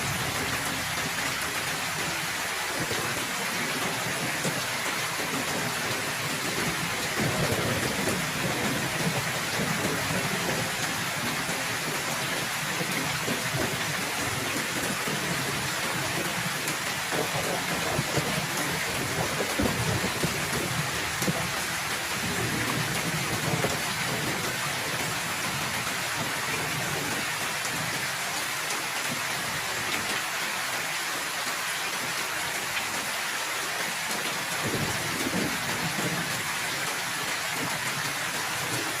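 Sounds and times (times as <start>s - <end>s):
heavy rain falling: 0.0s - 39.0s
thunder rumbling: 0.1s - 27.2s.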